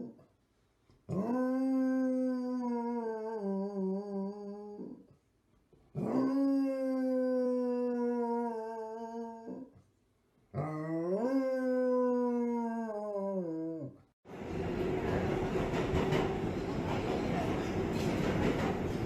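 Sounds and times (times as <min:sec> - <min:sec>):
dog howling: 0:01.1 - 0:05.0, 0:06.0 - 0:09.7, 0:10.6 - 0:14.0.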